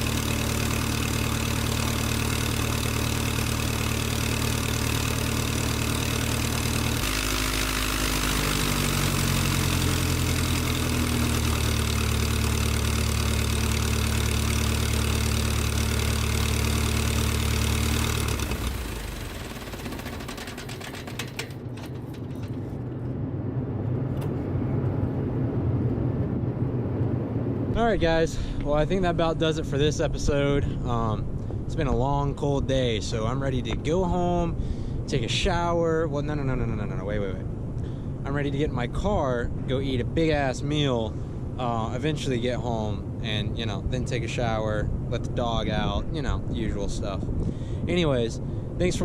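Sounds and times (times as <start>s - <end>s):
engine running: 0.0s - 27.7s.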